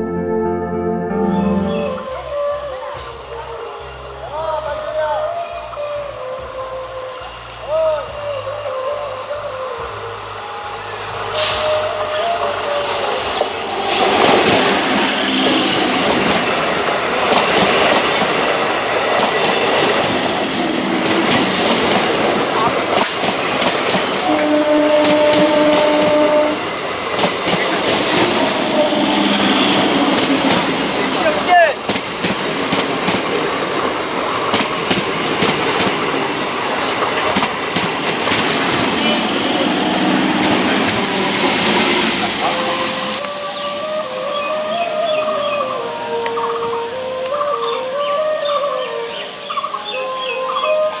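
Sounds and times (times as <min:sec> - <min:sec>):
rush of train coaches: 0:02.4 - 0:51.0
wheels clacking over rail joints: 0:29.2 - 0:39.2
train wheels clattering over rail joints: 0:37.1 - 0:39.0.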